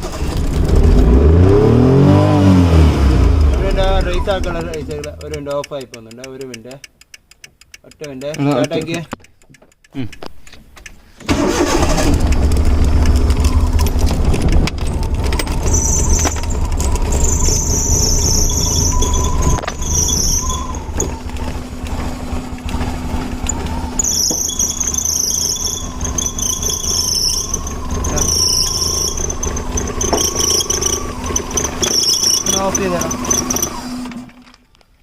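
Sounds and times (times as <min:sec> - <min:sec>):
car engine running: 0:00.0 - 0:05.8, 0:11.6 - 0:34.1
high-pitched squeal: 0:13.2 - 0:34.2.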